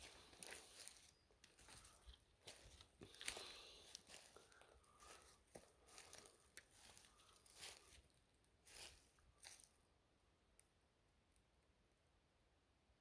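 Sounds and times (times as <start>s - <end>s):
faint rustling and crackling: 0.0s - 9.8s.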